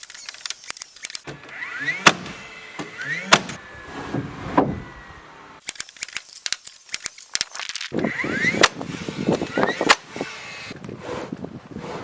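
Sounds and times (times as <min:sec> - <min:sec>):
small sharp clicks and rattles: 0:00.0 - 0:01.3, 0:05.6 - 0:08.0.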